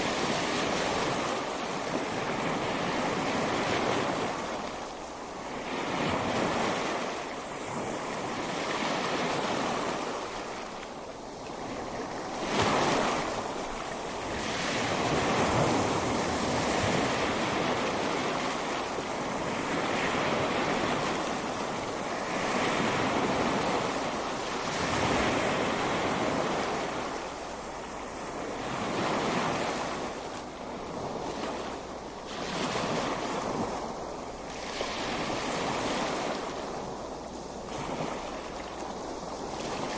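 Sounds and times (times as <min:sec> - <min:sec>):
ocean surf breaking: 0:11.6 - 0:39.9.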